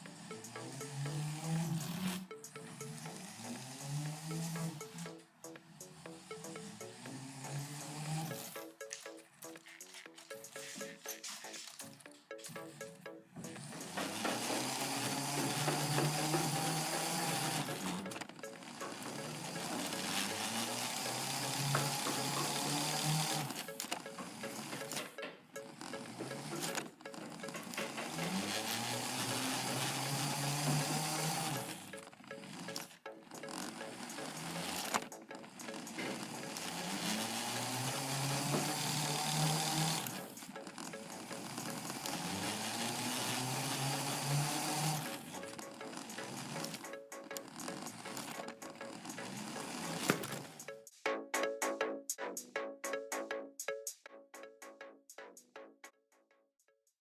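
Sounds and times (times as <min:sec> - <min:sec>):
toy motors whirring through gears: 0:00.1 - 0:05.1, 0:05.9 - 0:08.5, 0:13.6 - 0:50.7.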